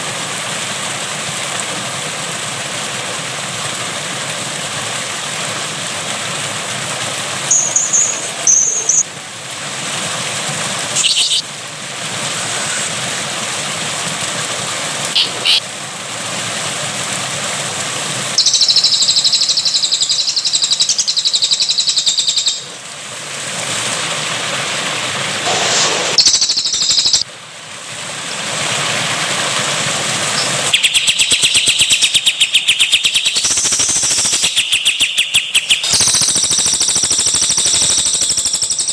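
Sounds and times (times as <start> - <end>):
water rushing: 0.0 - 38.9
songbirds trilling: 7.5 - 9.0, 11.0 - 11.4, 15.1 - 15.6, 18.4 - 22.7, 30.4 - 37.0.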